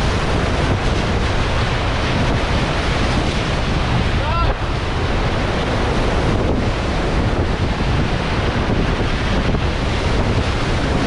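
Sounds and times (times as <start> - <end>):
whitewater rushing: 0.0 - 11.0
wind rumble on microphone: 0.0 - 11.0.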